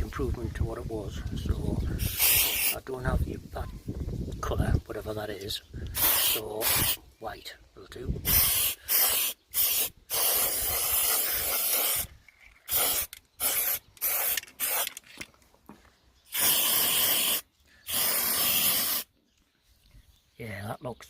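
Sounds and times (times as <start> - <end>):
spray paint can hissing: 2.0 - 2.8, 5.9 - 7.0, 8.2 - 15.0, 16.3 - 19.1.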